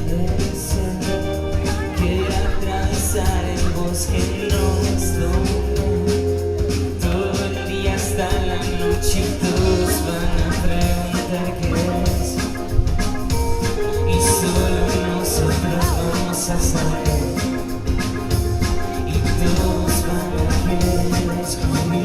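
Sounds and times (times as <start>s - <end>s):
live band playing: 0.0s - 22.0s.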